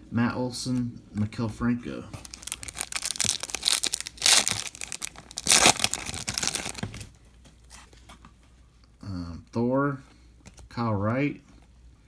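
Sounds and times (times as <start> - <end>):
foil wrapper tearing and crinkling: 2.2 - 7.1.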